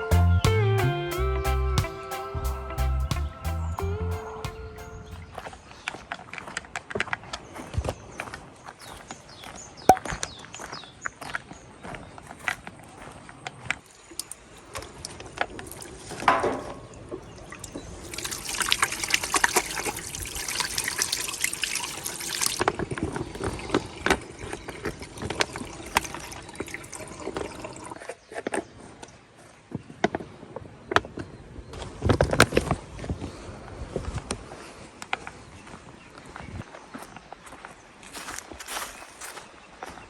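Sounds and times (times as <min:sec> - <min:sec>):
liquid pouring: 0:14.1 - 0:28.0.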